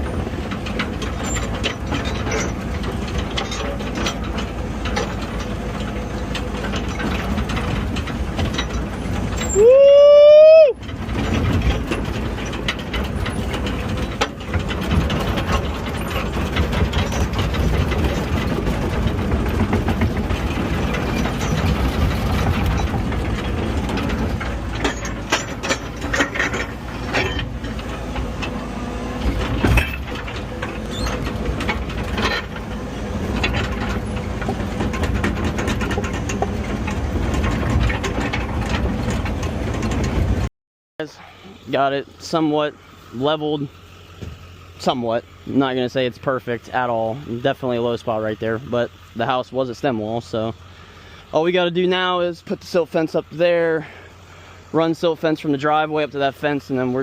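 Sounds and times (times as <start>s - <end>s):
metallic knocks and clanks: 0.0s - 9.7s, 10.8s - 40.5s
diesel engine running: 0.0s - 57.0s.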